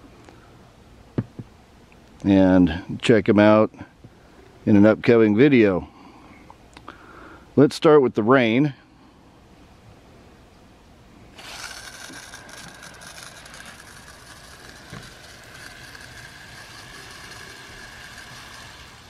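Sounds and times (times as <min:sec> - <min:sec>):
water spray hissing: 0:11.4 - 0:19.0.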